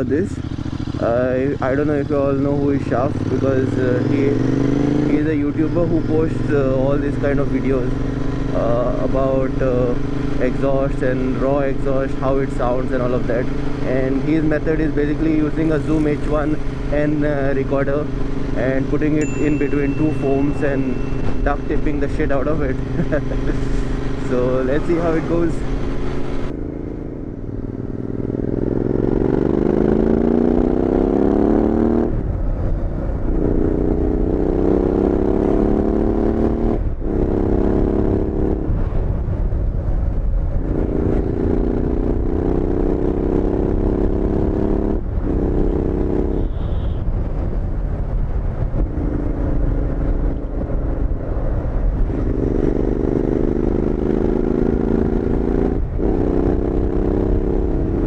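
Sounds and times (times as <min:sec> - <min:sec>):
motorcycle engine exhaust: 0:18.1 - 0:26.5.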